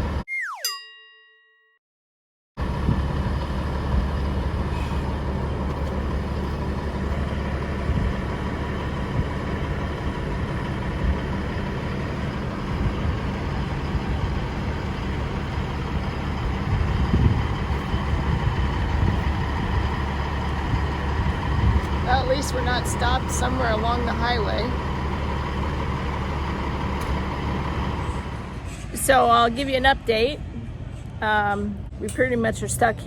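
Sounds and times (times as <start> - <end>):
chime: 0.6 - 1.8
truck diesel engine idling: 2.6 - 32.4.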